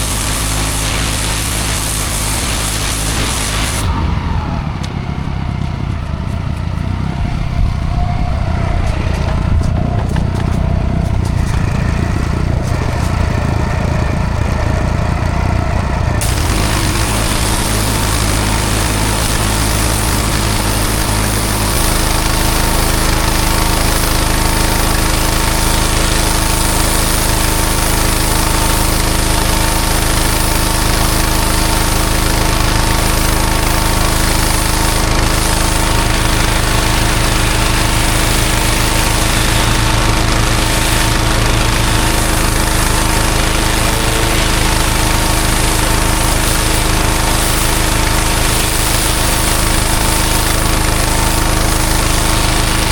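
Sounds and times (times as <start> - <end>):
high-pressure water spray hiss: 0.0 - 4.0, 16.2 - 52.9
pressure washer engine running: 0.0 - 52.9.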